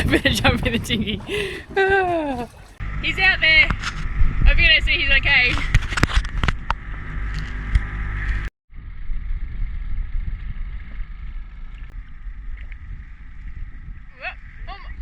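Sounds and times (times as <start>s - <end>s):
outboard motor running: 0.0s - 2.8s
water noise: 0.0s - 2.8s
wind: 0.0s - 15.0s.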